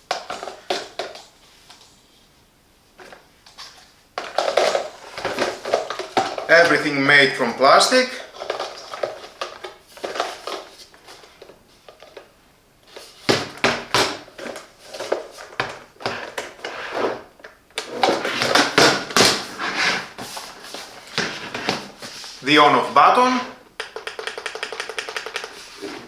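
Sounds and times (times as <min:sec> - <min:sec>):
plastic parts clicking and knocking: 0:04.2 - 0:06.5, 0:23.7 - 0:25.9.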